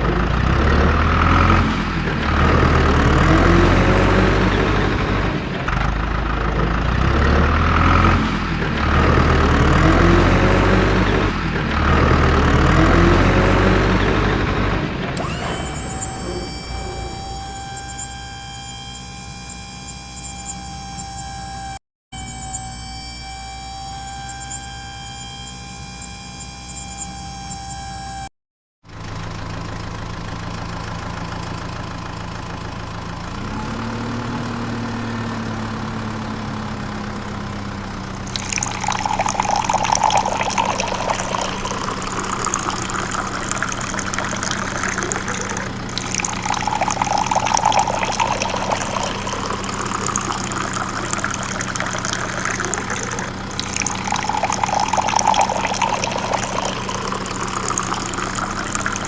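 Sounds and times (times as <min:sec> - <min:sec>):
small water pump motor humming: 0:15.2 - 0:18.1, 0:38.2 - 0:59.0
water splashing and pouring: 0:38.2 - 0:59.0.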